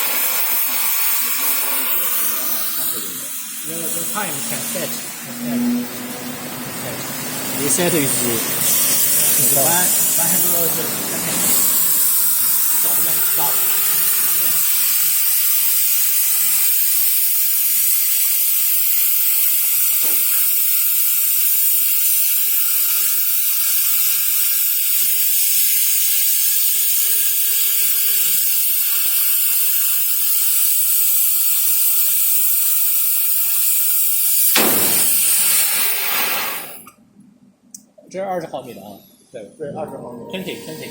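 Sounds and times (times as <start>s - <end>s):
cutting torch gas jet hissing: 0.0s - 36.9s, 40.4s - 40.9s.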